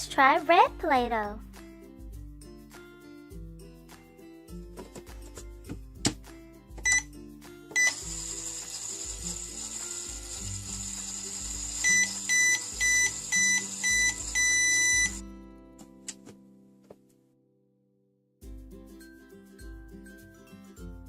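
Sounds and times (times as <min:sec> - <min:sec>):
background music: 0:00.0 - 0:16.7, 0:18.4 - 0:21.0
toy microwave beeps: 0:06.8 - 0:07.1, 0:07.7 - 0:15.2
high hiss of toy microwave: 0:07.7 - 0:15.2.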